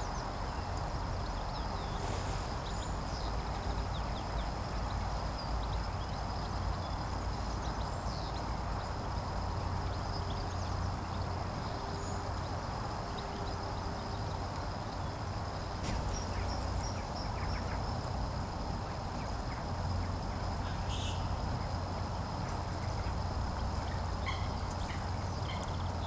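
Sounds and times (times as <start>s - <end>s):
songbirds chirping: 0.0s - 8.9s, 15.8s - 26.0s.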